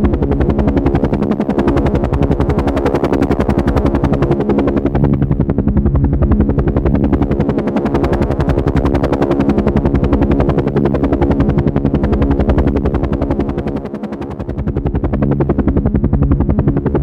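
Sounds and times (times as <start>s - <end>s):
helicopter rotor chopping: 0.0s - 17.0s
low engine drone: 0.0s - 17.0s.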